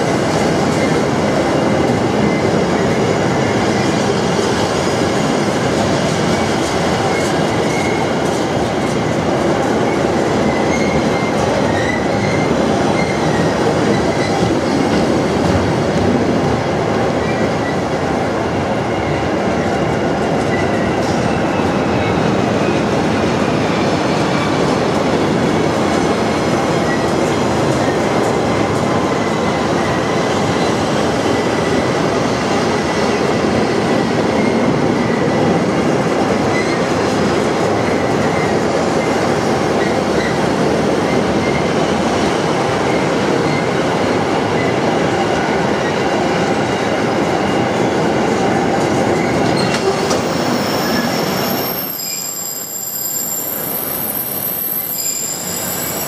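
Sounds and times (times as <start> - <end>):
train wheels rumbling on rail: 0.0 - 56.0
high wheel squeal: 49.2 - 56.0.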